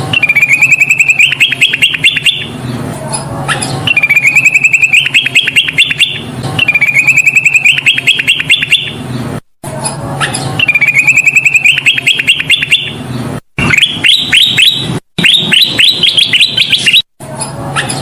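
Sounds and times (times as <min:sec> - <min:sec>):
bulbul singing: 0:00.0 - 0:09.2, 0:10.2 - 0:17.1.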